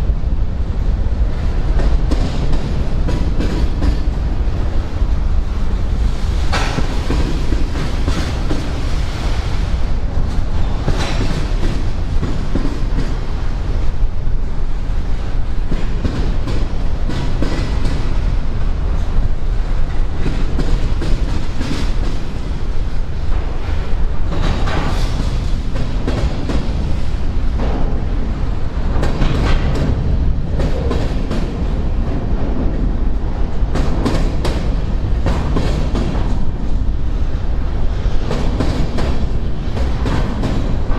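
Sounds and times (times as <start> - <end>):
freight train rumbling on rails: 0.0 - 40.9
metallic clanks from train couplers: 6.5 - 8.8, 10.6 - 13.2.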